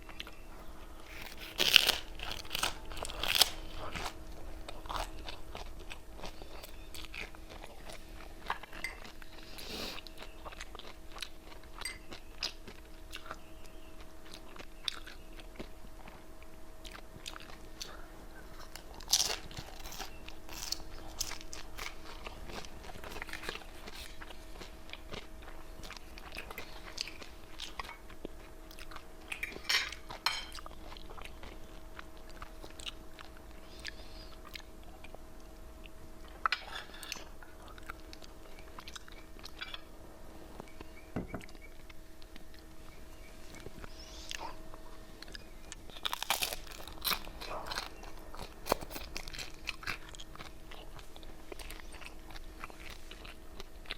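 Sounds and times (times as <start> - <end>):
faint steady hum: 0.0 - 53.9
crunching chips: 1.0 - 13.4, 18.6 - 34.7, 44.3 - 53.9.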